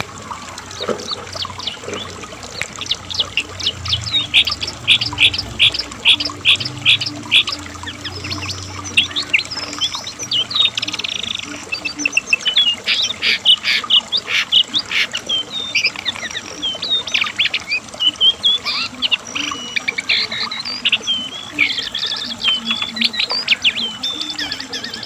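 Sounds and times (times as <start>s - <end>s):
bird singing whistled notes: 1.0s - 14.0s, 14.8s - 25.0s.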